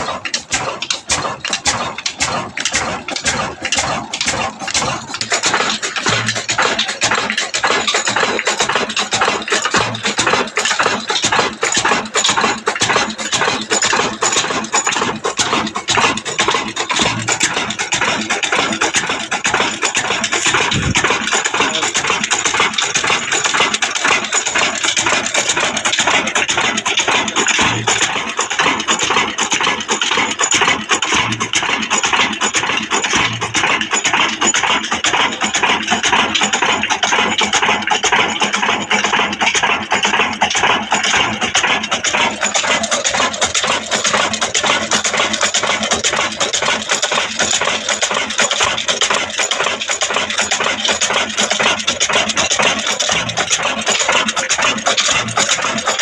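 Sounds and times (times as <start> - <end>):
diesel engine clattering: 0.0 - 56.0.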